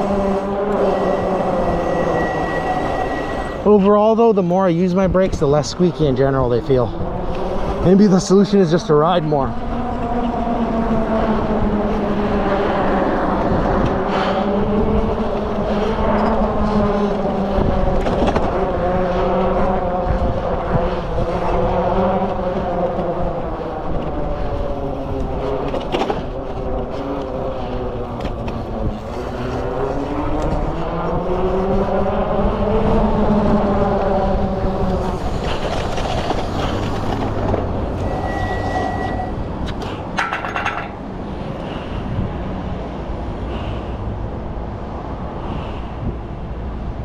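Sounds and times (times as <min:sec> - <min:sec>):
electric motor whine: 0:00.0 - 0:03.7, 0:37.0 - 0:39.4
high steady tone: 0:00.0 - 0:04.3, 0:37.9 - 0:39.5
wind and tyre noise: 0:00.0 - 0:47.0.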